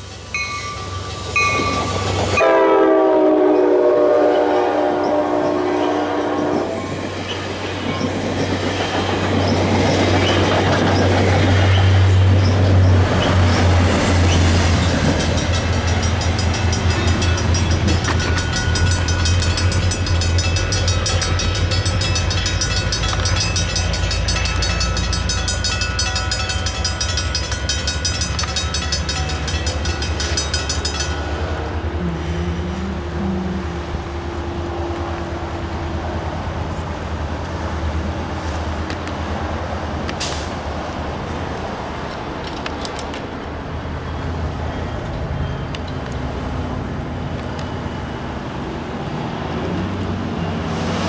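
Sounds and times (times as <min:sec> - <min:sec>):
diesel locomotive engine hum: 0:00.0 - 0:51.0
train wheels clattering over rails: 0:07.1 - 0:31.8, 0:34.9 - 0:51.0.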